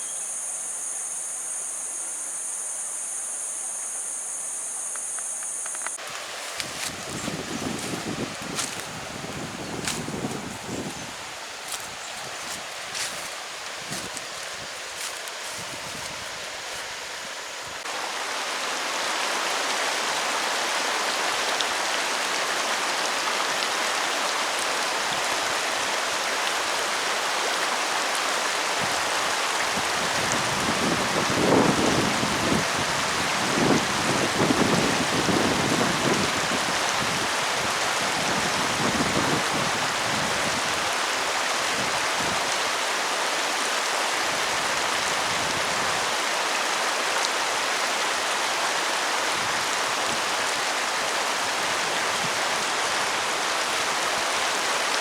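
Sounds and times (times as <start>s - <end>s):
steady rain hissing: 0.0s - 55.0s.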